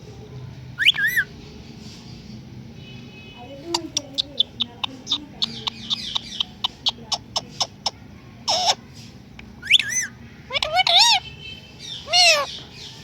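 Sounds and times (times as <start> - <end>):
parrot squawk: 0.8 - 1.3, 4.2 - 8.8, 9.6 - 12.6
parrot clicking: 3.7 - 8.0.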